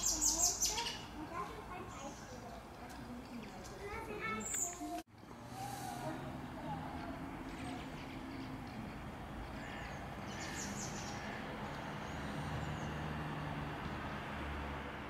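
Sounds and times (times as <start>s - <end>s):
quiet street background: 0.0s - 15.0s
birds cawing: 7.5s - 13.1s.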